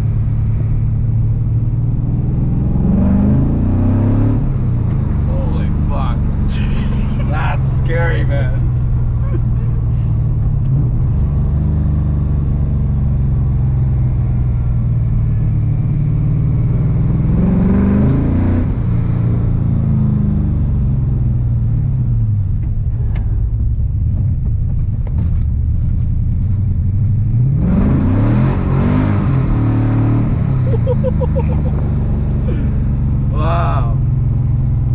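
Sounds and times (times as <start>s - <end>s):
car engine revving under load: 0.0s - 34.9s.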